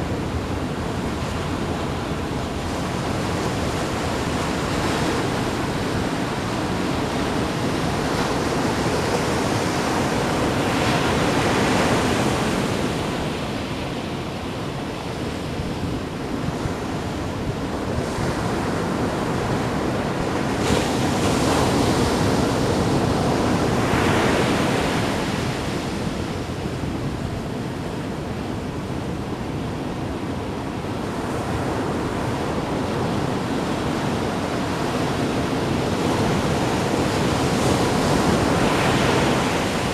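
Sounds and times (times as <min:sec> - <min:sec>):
ocean waves splashing: 0:31.2 - 0:39.9.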